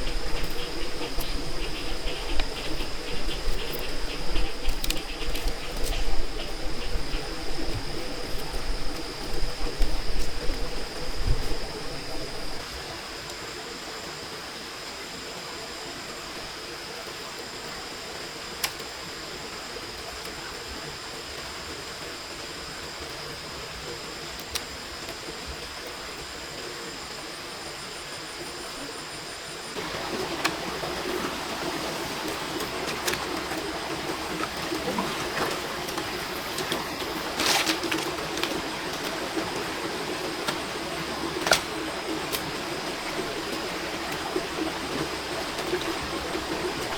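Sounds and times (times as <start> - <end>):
rain falling: 29.8 - 46.9.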